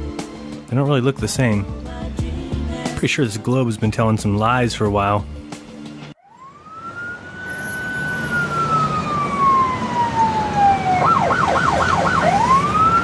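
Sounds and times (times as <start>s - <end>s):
police siren wailing and yelping: 6.2s - 13.0s.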